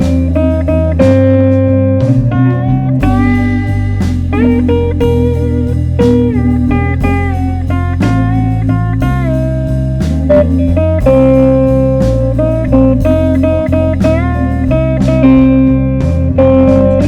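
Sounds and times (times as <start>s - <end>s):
slow blues guitar: 0.0s - 17.0s
steady bass notes: 0.0s - 17.0s.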